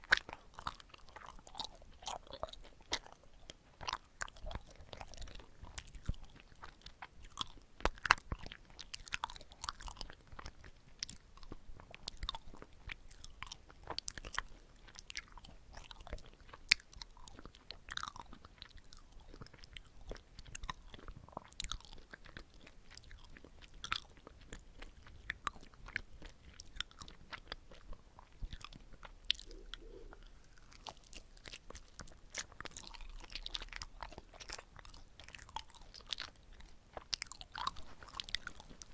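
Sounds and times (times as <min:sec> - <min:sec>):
person chewing sticky food: 0:00.0 - 0:38.9.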